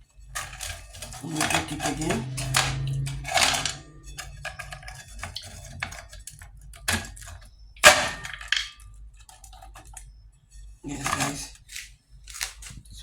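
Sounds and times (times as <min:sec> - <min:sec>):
peanut brittle snapping: 0:11.7 - 0:12.8.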